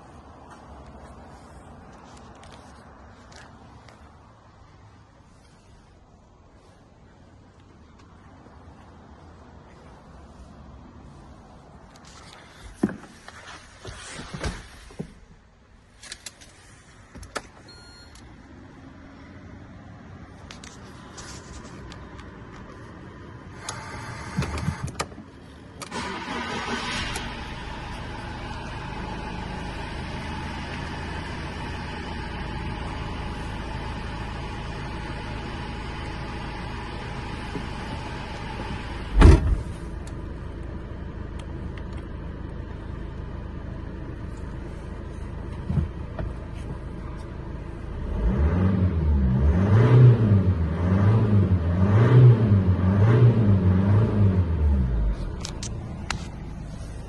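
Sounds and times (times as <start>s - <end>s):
diesel van engine idling: 23.3s - 47.9s, 54.9s - 57.0s.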